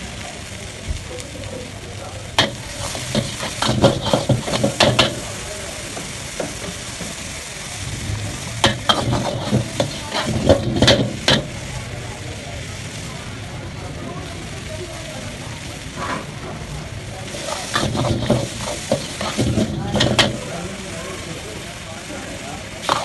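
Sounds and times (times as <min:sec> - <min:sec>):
food sizzling: 0:00.0 - 0:23.0
utensil scraping and clacking on pan: 0:02.4 - 0:05.3, 0:08.6 - 0:11.5, 0:17.4 - 0:20.5.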